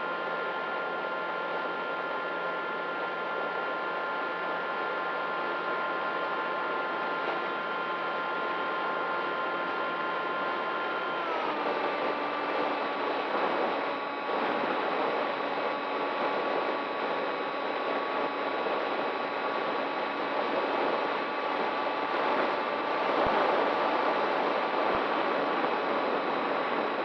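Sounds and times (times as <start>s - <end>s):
model plane motor whine: 9.7s - 27.0s.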